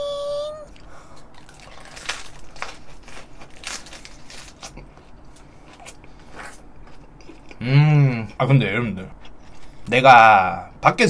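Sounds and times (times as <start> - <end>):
crisp cabbage crunching: 0.7 - 7.6.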